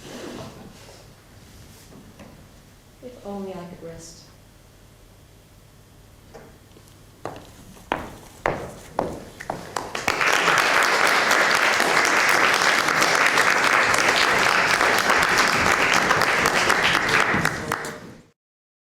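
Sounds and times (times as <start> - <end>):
audience applause: 9.4 - 18.3.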